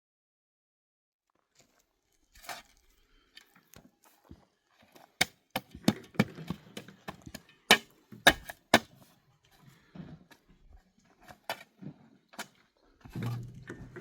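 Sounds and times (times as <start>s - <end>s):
sharp knocks and cracks: 5.2s - 8.9s.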